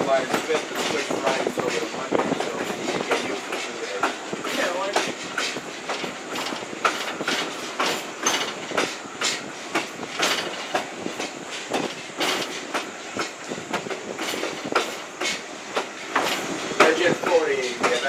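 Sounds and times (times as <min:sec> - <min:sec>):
train running rumble: 0:00.0 - 0:18.0
train wheels clicking over rail joints: 0:00.0 - 0:18.0.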